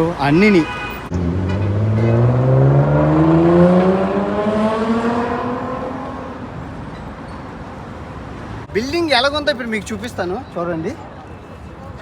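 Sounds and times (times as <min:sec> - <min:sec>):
vehicle accelerating past: 0:01.1 - 0:06.5.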